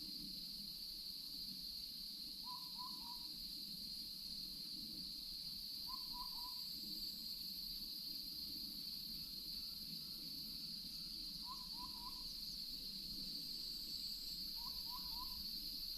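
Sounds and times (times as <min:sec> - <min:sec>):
owl hooting: 0:02.4 - 0:03.2, 0:05.9 - 0:06.6, 0:11.4 - 0:12.2, 0:14.6 - 0:15.4.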